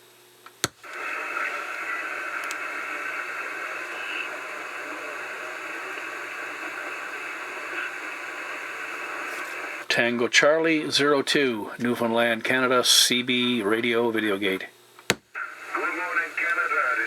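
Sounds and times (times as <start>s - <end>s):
radio click: 0.6s - 9.8s, 15.0s - 17.0s
radio static hiss: 0.6s - 17.0s.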